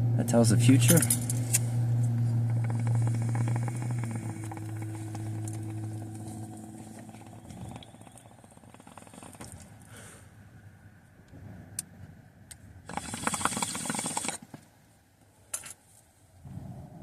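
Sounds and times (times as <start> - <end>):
vehicle engine humming: 0.0 - 14.8.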